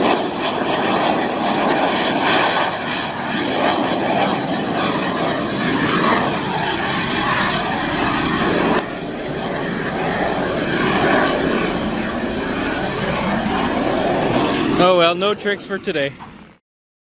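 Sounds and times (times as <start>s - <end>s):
jet engine roaring: 0.0s - 16.6s.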